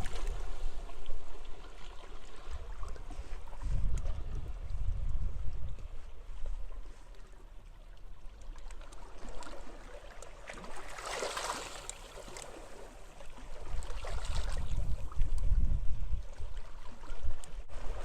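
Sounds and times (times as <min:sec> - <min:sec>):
wind rumble on microphone: 0:00.0 - 0:07.3, 0:13.4 - 0:18.0
sea waves washing on beach: 0:10.7 - 0:13.1.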